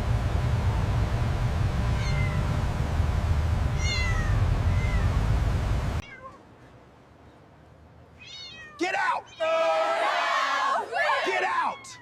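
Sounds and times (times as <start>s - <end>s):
low rumble: 0.0s - 6.0s
kitten meowing: 2.0s - 2.4s, 3.8s - 5.1s, 8.2s - 9.4s.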